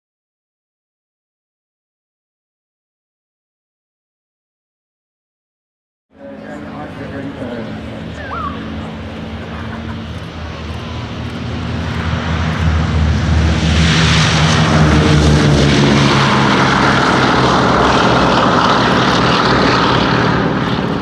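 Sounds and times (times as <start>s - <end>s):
propeller aircraft flying past: 6.1s - 21.0s.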